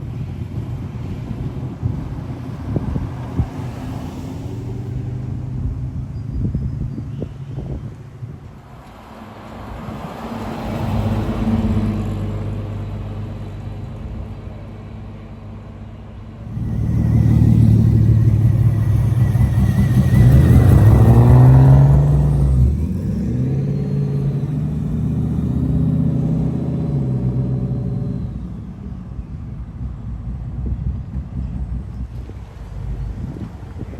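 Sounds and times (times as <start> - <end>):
car engine accelerating: 16.4 - 33.9
car engine passing: 16.4 - 33.9.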